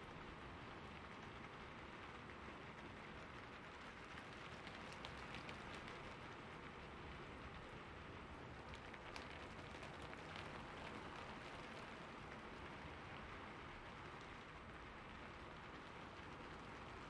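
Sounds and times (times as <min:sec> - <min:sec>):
steady rain on a surface: 0:00.0 - 0:17.0.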